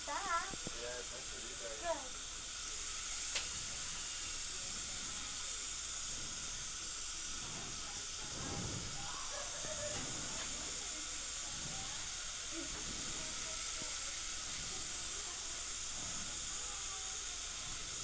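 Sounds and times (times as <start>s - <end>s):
dental drill with water spray: 0.0s - 18.0s.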